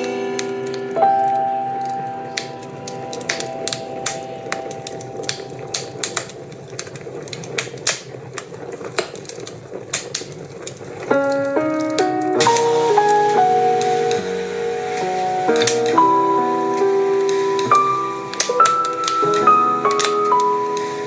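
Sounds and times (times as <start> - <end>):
instrumental music: 0.0 - 6.8, 11.1 - 21.0
wood fire crackling: 0.0 - 21.0.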